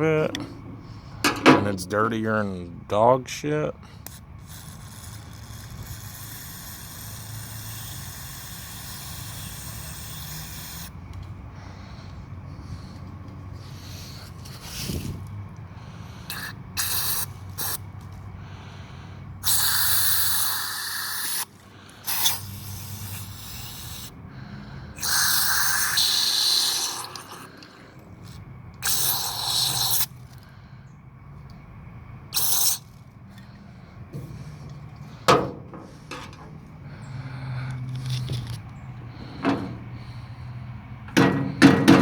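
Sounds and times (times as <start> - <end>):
aerosol spray hissing: 4.4 - 10.9, 16.3 - 17.8, 19.4 - 21.5, 22.1 - 24.1, 25.0 - 27.2, 32.4 - 32.9.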